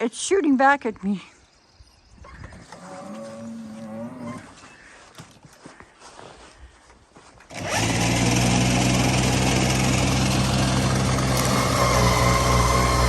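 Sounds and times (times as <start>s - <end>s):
electric snowblower running: 7.5s - 13.0s.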